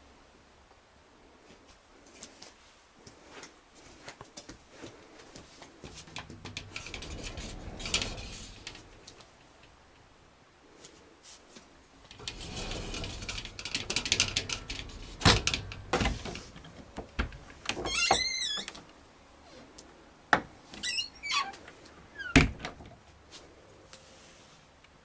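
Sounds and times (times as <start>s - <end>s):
rattle: 5.6s - 9.8s, 11.9s - 18.1s
short squeaks: 20.8s - 22.4s.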